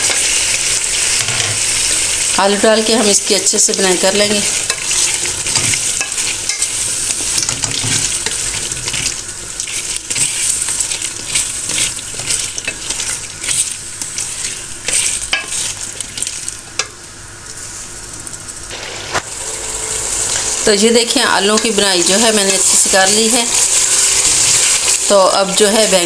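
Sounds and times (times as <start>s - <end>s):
potatoes sizzling in a pan: 0.0s - 26.0s.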